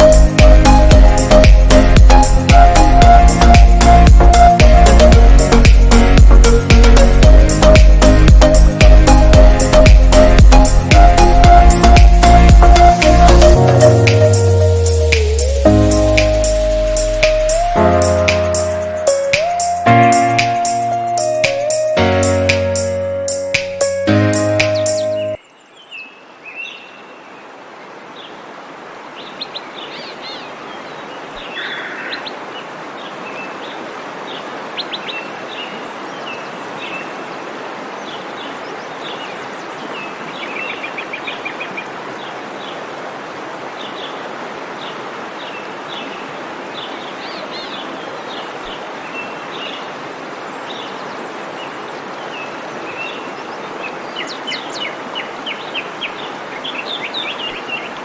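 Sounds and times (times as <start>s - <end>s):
waterfall rushing: 0.0s - 25.4s, 27.4s - 58.0s
birds chirping: 0.0s - 27.4s, 29.2s - 42.8s.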